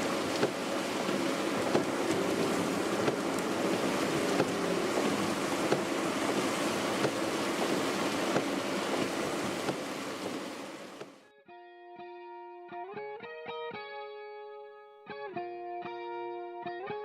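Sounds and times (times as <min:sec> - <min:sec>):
wind and rain rushing: 0:00.0 - 0:11.2
sharp taps: 0:04.3 - 0:04.6, 0:05.6 - 0:07.7, 0:08.3 - 0:10.4
electric guitar music: 0:11.3 - 0:17.0.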